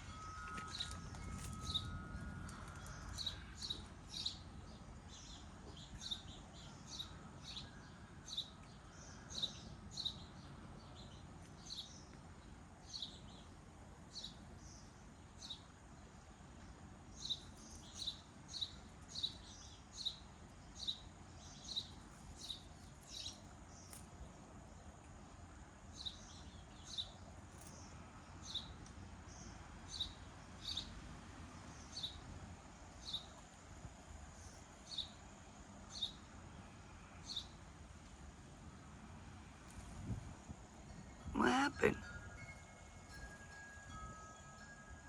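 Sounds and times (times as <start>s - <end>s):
bird chirping: 0.0s - 12.2s
faint low background noise: 0.0s - 45.0s.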